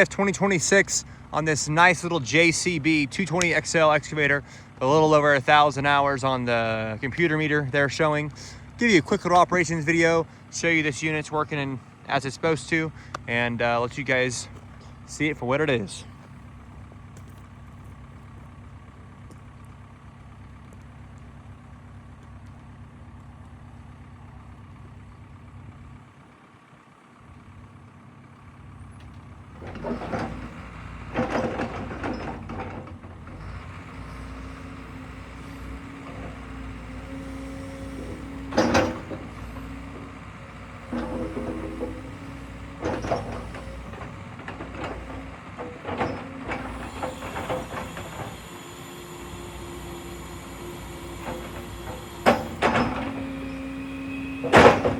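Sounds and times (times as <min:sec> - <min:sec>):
excavator clanking and knocking: 0:00.0 - 0:10.1, 0:28.8 - 0:54.9
diesel engine idling: 0:00.0 - 0:54.9.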